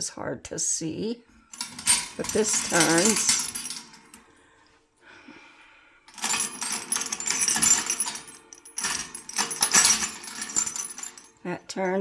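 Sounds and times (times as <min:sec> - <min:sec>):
metal toy parts clinking and rattling: 0:01.6 - 0:04.2, 0:06.1 - 0:11.3.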